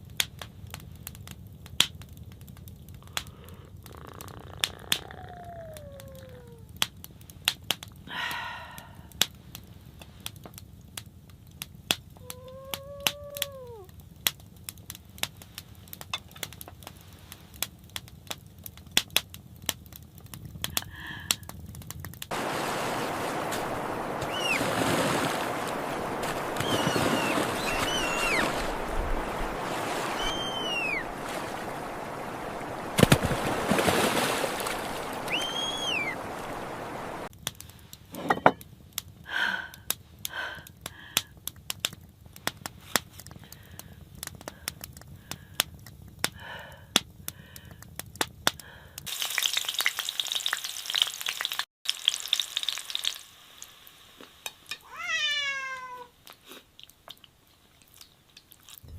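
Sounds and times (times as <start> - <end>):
crackling and clicking: 0.1 - 8.1, 9.2 - 22.4, 38.6 - 49.1, 56.2 - 58.9
rushing water: 22.3 - 37.3
chirping bird calls: 23.8 - 24.8, 25.5 - 32.2, 35.0 - 36.8.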